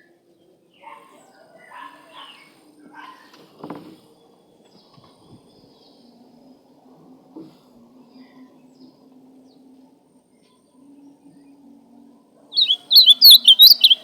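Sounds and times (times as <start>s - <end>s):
grosbeak singing warbled phrases: 12.6s - 14.0s.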